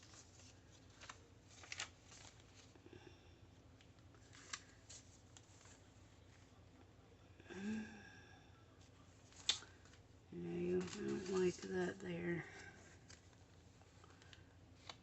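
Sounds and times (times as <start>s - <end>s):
paper rustling: 0.0s - 2.8s, 3.8s - 6.6s, 9.1s - 15.0s.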